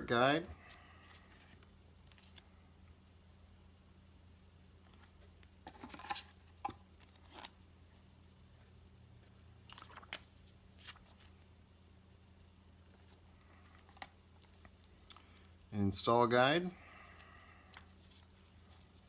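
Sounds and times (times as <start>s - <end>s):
low steady hum: 0.0s - 19.0s
paper rustling and crinkling: 9.4s - 11.5s.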